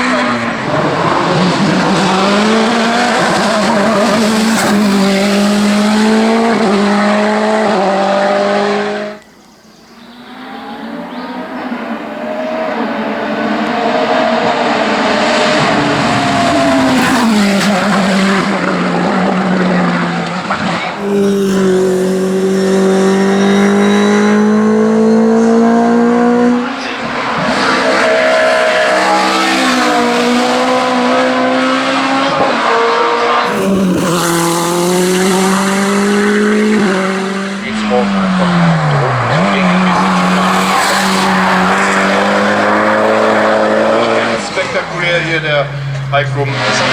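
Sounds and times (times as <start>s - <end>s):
race car engines revving: 0.0s - 46.9s.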